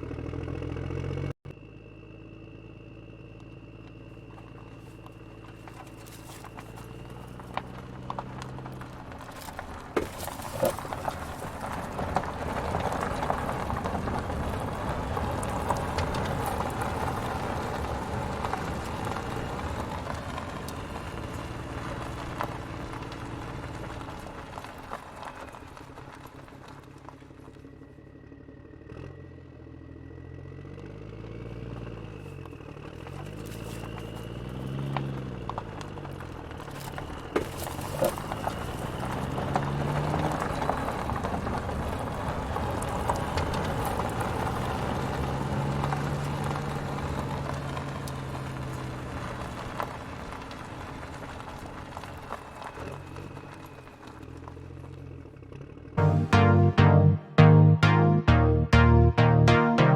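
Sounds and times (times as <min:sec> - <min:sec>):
low engine-like hum: 0:00.0 - 0:24.8
toy roller rattling over rough ground: 0:04.8 - 0:17.2.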